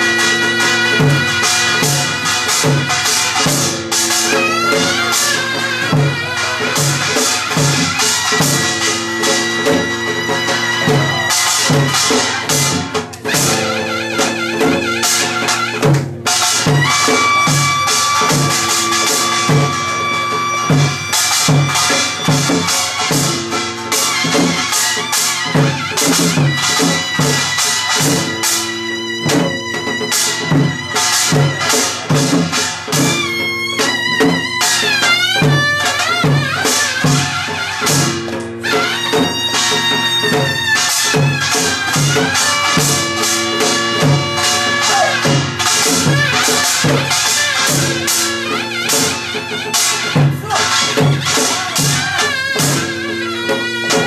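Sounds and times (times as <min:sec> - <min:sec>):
reedy wind instrument: 0:00.0 - 0:54.0
steady drum beat: 0:00.0 - 0:54.0.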